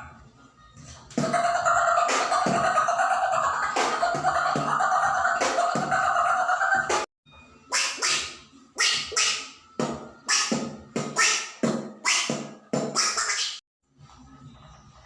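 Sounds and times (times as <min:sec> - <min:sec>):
beatbox mouth percussion: 0:01.1 - 0:07.1, 0:07.7 - 0:13.6.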